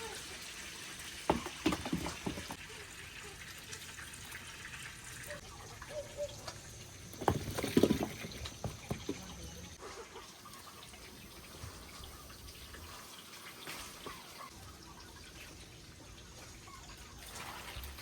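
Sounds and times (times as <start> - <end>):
water trickling: 0.3 - 18.0
clattering knocks: 1.3 - 2.6.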